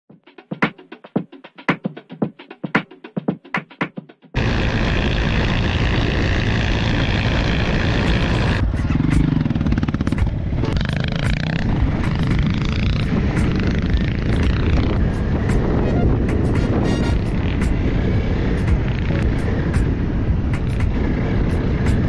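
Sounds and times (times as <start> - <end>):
dirt bike engine revving: 4.4 - 22.0
wind rumble on microphone: 4.4 - 22.0.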